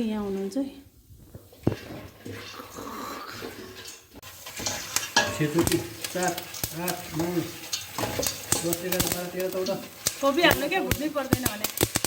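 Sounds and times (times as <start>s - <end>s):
popcorn sizzling in a pan: 0.0s - 12.0s
scraping in a pan: 0.0s - 12.0s
popcorn clicking: 4.8s - 12.0s.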